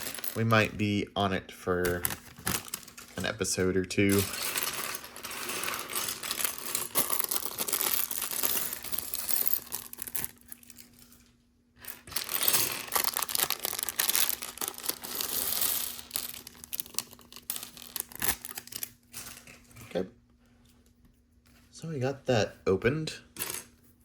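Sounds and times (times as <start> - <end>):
plastic bag crinkling: 1.9 - 3.4, 4.0 - 11.1, 12.0 - 19.0
plastic bricks clinking: 4.0 - 10.8, 11.8 - 18.8.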